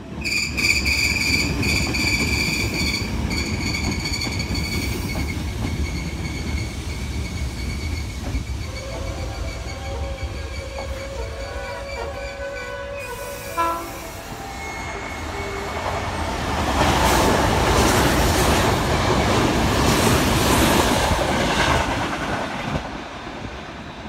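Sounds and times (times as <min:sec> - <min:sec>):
train wheels clacking over joints: 0:00.7 - 0:12.1
train horn blast: 0:08.6 - 0:16.4.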